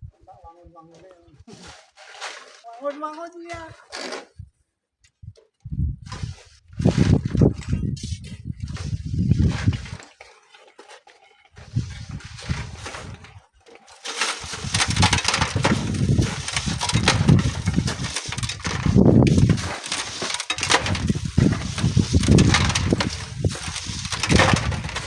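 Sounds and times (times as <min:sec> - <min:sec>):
wind buffeting microphone: 0:05.2 - 0:10.0, 0:14.5 - 0:19.8, 0:20.6 - 0:25.0.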